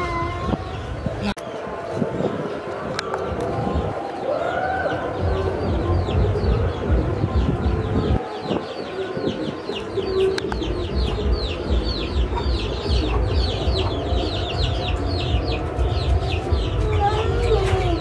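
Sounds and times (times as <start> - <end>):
birds chirping: 0.0 - 18.0
steady low rumble: 5.0 - 8.2, 10.0 - 18.0.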